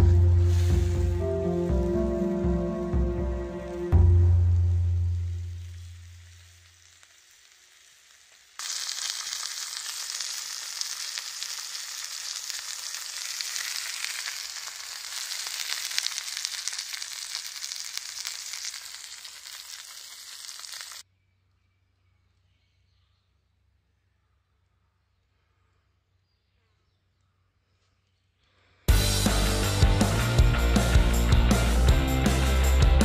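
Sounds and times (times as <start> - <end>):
food sizzling in a frying pan: 4.8 - 21.0.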